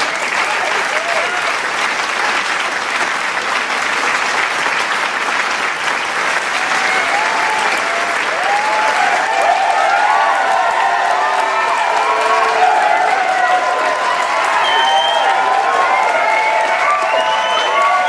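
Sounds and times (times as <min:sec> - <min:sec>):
cheering shouts and whoops: 0:00.0 - 0:01.6, 0:06.3 - 0:18.0
crowd applauding: 0:00.0 - 0:18.0.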